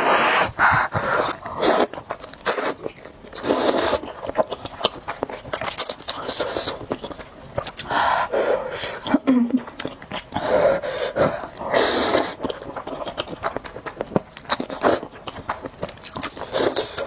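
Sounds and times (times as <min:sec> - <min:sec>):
noodle slurps: 0:00.0 - 0:04.6, 0:11.0 - 0:12.8
chewing with wet mouth clicks: 0:01.3 - 0:08.0, 0:08.9 - 0:10.4, 0:11.3 - 0:17.0.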